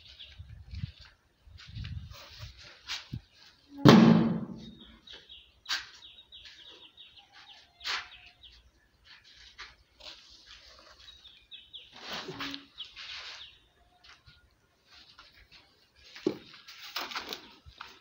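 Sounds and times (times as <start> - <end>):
small birds chirping: 0.0 - 3.7, 4.6 - 16.2
sharp knocks: 3.8 - 4.8.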